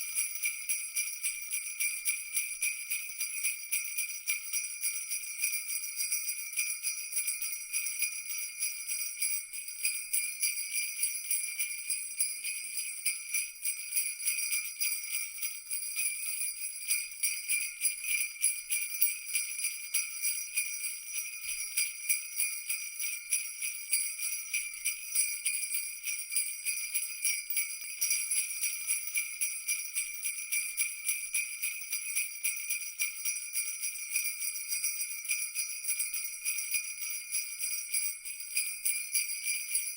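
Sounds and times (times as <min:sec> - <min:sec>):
jingle bells shaken: 0:00.0 - 0:39.9.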